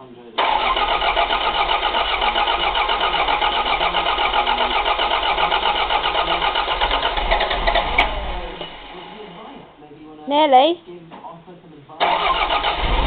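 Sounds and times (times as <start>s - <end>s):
starter motor cranking engine: 0.4s - 9.2s, 12.0s - 13.0s.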